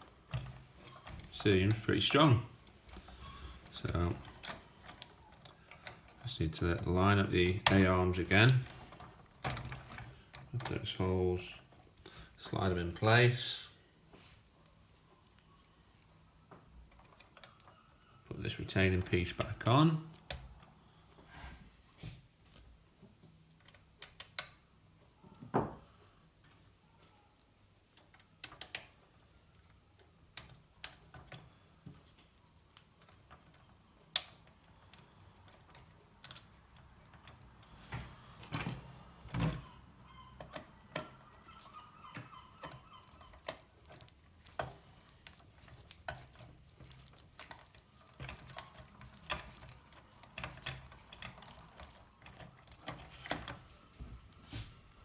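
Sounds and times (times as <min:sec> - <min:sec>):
light clicks and taps of parts: 0:21.9 - 0:54.6.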